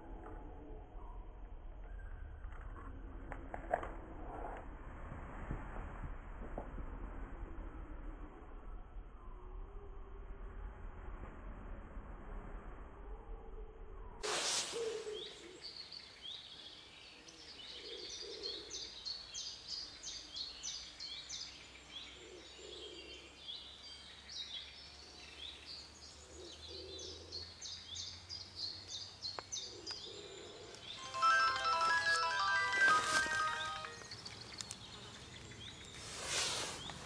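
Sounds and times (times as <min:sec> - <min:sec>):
small birds singing: 0:15.0 - 0:31.1, 0:33.4 - 0:37.0.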